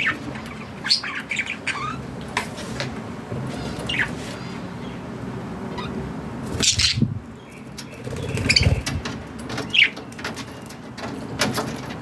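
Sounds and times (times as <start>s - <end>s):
budgerigar chirps and squawks: 0.0s - 2.0s, 6.6s - 7.0s.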